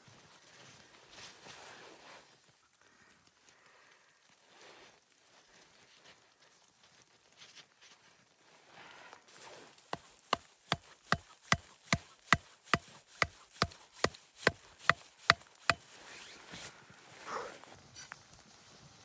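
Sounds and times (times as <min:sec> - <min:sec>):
tool striking wood: 0:09.9 - 0:15.8.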